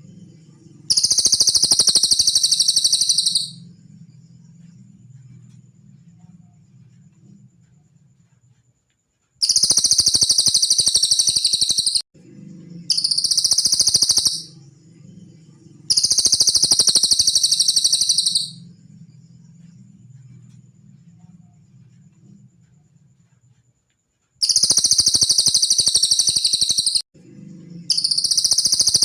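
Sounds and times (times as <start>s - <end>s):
faint low hum: 0.0s - 9.4s, 12.2s - 24.4s, 27.2s - 29.0s
bird singing high trills: 0.6s - 3.7s, 9.4s - 12.0s, 12.8s - 14.6s, 15.5s - 18.8s, 24.4s - 27.0s, 27.8s - 29.0s.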